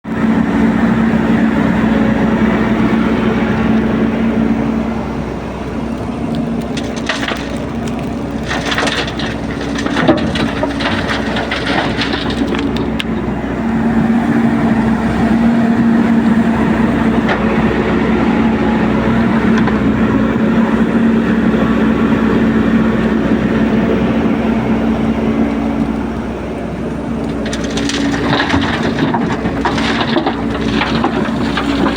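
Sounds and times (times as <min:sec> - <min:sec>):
excavator diesel engine running: 0:00.1 - 0:31.9
crunching and cracking: 0:05.9 - 0:13.4, 0:27.2 - 0:31.9.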